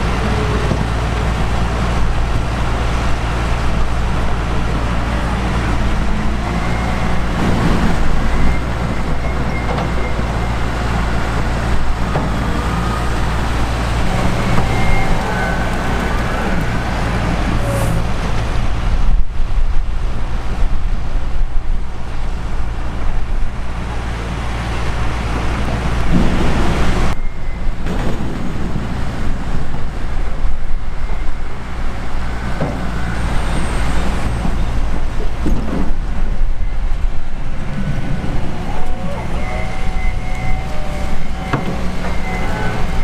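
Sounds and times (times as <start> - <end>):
diesel farm machinery droning: 0.0 - 43.0.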